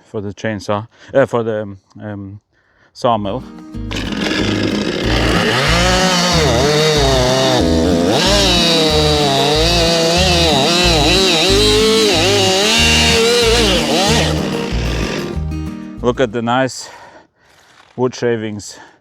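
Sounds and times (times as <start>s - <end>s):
chainsaw cutting through log: 3.8s - 15.6s.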